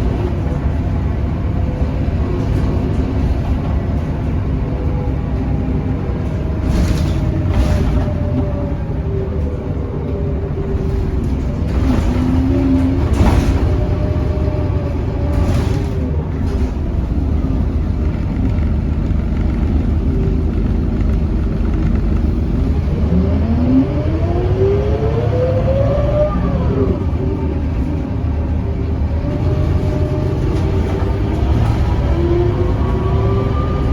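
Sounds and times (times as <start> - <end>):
bus engine running: 0.0 - 33.9
rising whine: 19.9 - 28.2, 31.8 - 33.9.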